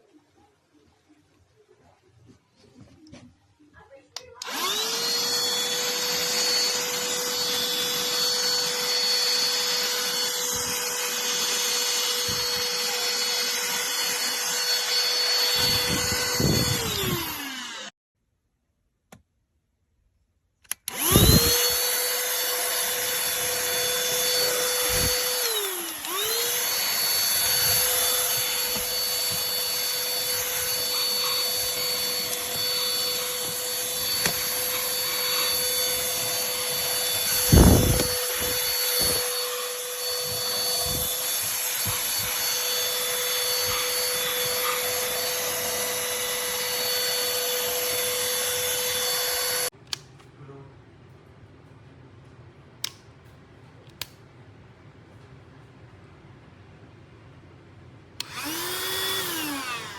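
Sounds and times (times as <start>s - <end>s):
handheld vacuum cleaner running: 4.4s - 17.9s, 20.7s - 49.7s, 58.2s - 59.9s.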